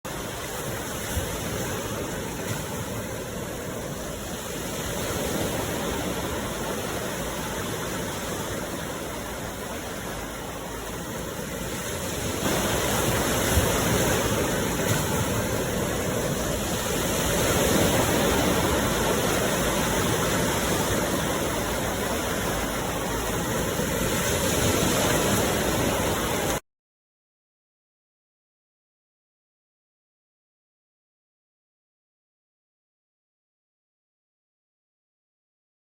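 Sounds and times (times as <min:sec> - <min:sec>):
rushing water: 0:00.1 - 0:26.6.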